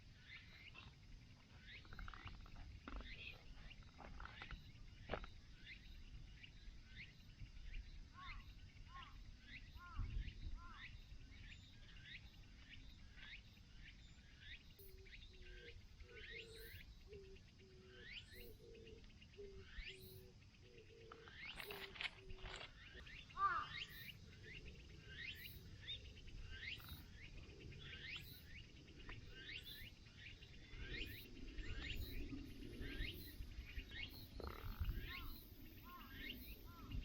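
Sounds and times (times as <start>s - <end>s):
birds chirping: 0.0s - 37.0s
lower bird call: 20.8s - 27.0s.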